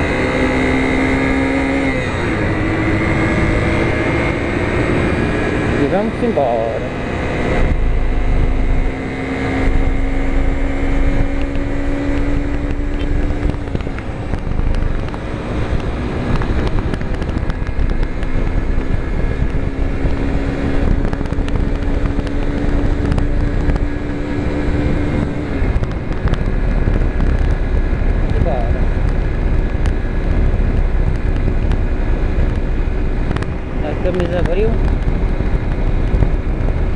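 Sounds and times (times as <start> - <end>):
motorcycle engine running: 0.0 - 36.9
wind buffeting microphone: 0.0 - 36.9.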